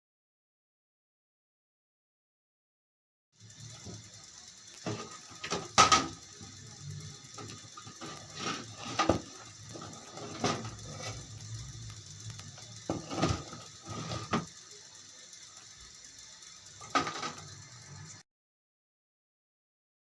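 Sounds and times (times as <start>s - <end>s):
faint steady hum: 3.4s - 18.2s
knocks and clatters: 4.7s - 6.5s, 7.3s - 14.6s, 16.8s - 17.6s.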